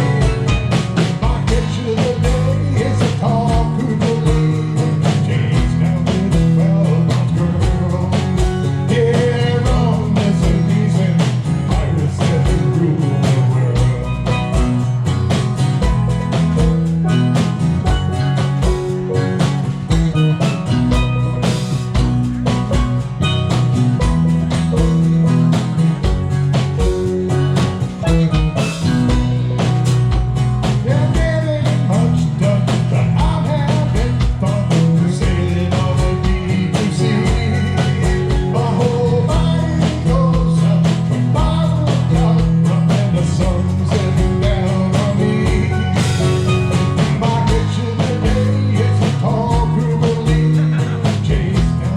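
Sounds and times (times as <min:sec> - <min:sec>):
person singing: 0:00.0 - 0:14.5, 0:30.8 - 0:51.9
live band playing: 0:00.0 - 0:51.9.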